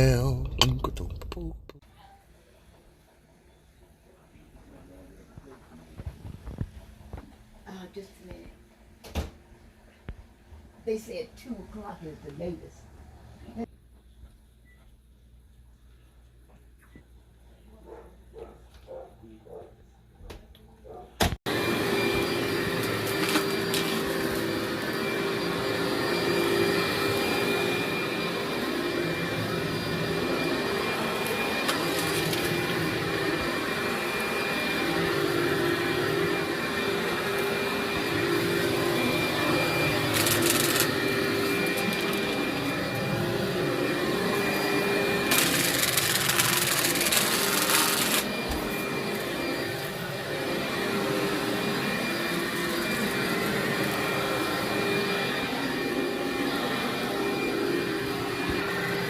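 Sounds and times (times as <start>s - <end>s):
vacuum cleaner running: 20.9s - 59.0s.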